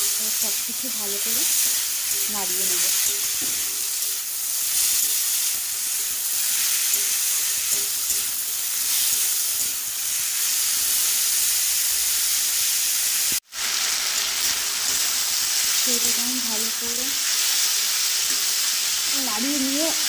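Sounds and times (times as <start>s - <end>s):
potatoes sizzling in hot oil: 0.0s - 20.0s
metal spatula stirring: 1.3s - 10.9s.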